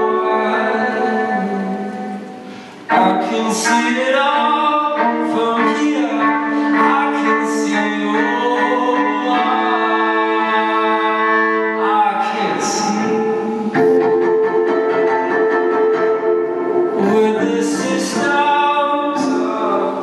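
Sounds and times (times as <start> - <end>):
looped low violin notes: 2.9 - 10.1, 12.7 - 18.6
bowed violin melody: 2.9 - 19.8.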